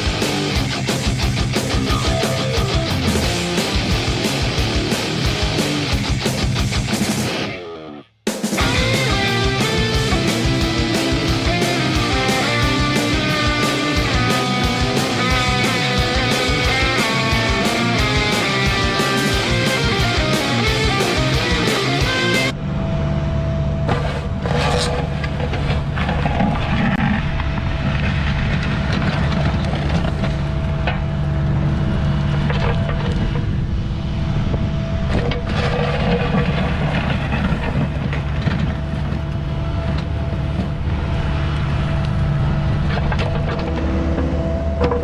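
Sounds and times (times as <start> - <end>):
excavator diesel engine running: 0.0 - 7.6, 8.6 - 45.0
hydraulic whine: 8.6 - 45.0
short knocks and scrapes: 23.9 - 27.2.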